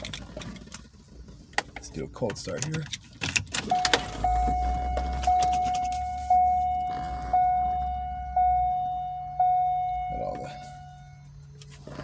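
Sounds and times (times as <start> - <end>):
keys and ignition rattling: 0.0 - 8.0
car warning chime: 3.6 - 11.6
low hum: 3.7 - 11.7.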